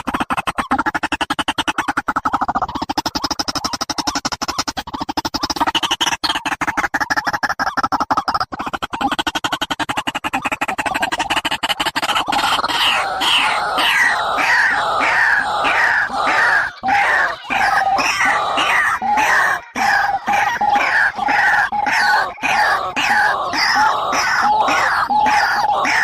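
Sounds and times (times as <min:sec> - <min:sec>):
bird rattling trill: 0:00.0 - 0:26.0
bird calls sliding down in pitch: 0:12.1 - 0:26.0.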